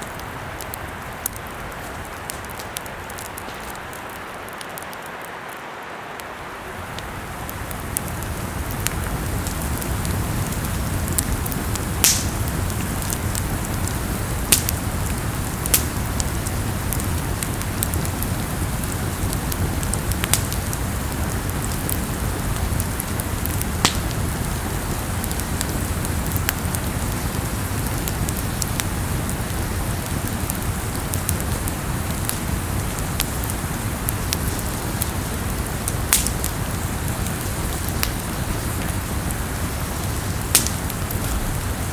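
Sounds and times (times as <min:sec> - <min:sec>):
campfire crackling: 0:00.0 - 0:41.9
sharp pop of fire: 0:11.1 - 0:13.4, 0:23.8 - 0:24.2, 0:36.1 - 0:36.5, 0:40.5 - 0:41.5.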